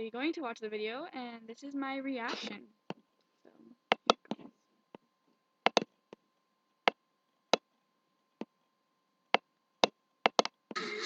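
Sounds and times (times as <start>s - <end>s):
computer mouse clicking: 5.7s - 5.9s, 9.8s - 10.6s.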